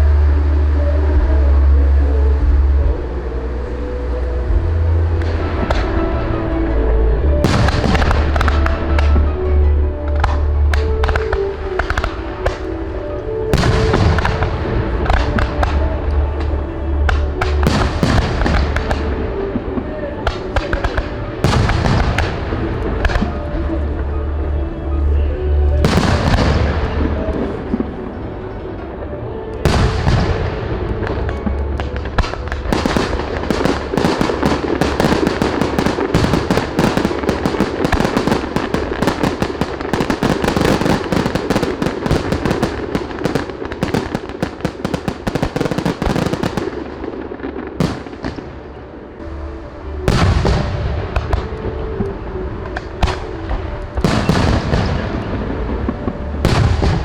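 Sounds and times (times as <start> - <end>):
dense firework crackling: 0.0 - 57.0
firework shells booming: 7.4 - 9.2, 29.6 - 48.5.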